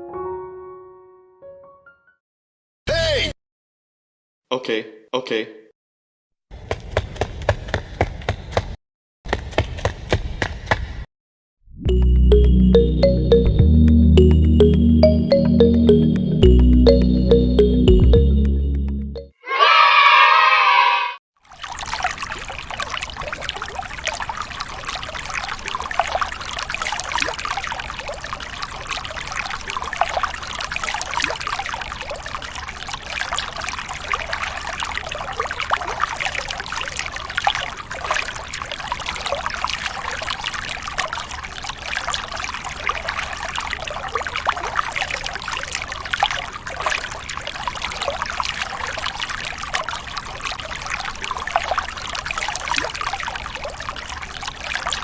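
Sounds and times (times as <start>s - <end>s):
water trickling and pouring: 21.4s - 55.0s.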